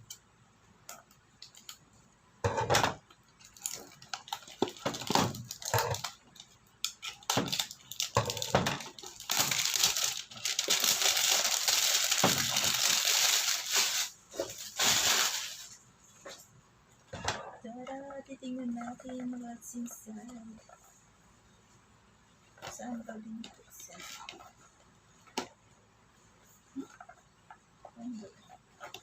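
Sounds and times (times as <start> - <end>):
packaging crinkling: 3.4 - 15.8
packaging ripping: 7.0 - 15.8.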